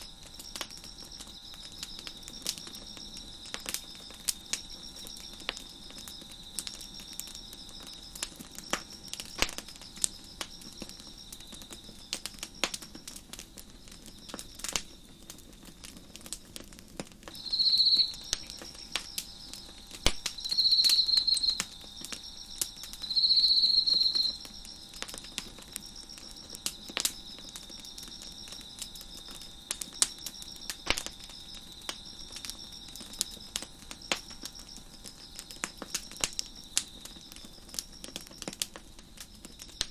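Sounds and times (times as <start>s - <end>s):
crickets chirping: 0.0s - 39.9s
wood fire crackling and popping: 0.0s - 39.9s
loud insect chirping bursts: 17.3s - 38.0s.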